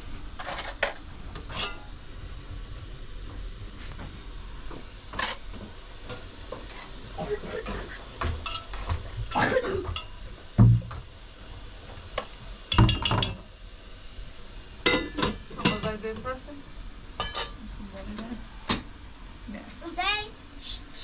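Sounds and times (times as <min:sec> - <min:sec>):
dishes and cutlery clinking: 0:08.2 - 0:10.1, 0:14.9 - 0:16.0, 0:17.2 - 0:17.6
heavy thump: 0:10.6 - 0:11.0.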